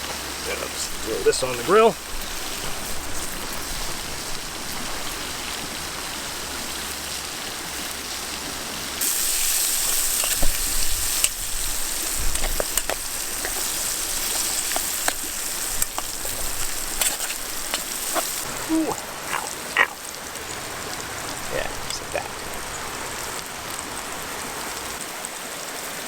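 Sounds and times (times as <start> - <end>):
fire pops and crackles: 0.0 - 25.3
chicken sizzling on a grill: 0.0 - 26.0.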